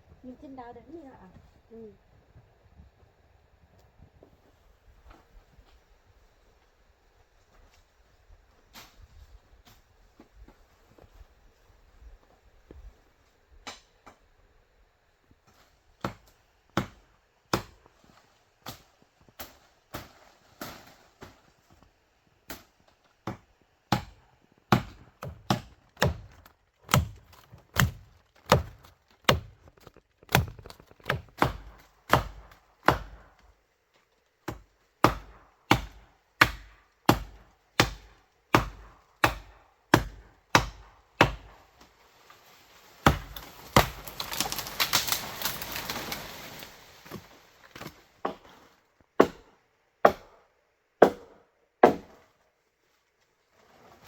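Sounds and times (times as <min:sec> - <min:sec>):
blade chopping bamboo: 0:22.5 - 0:33.4, 0:34.5 - 0:41.6, 0:43.0 - 0:45.8, 0:49.2 - 0:50.3.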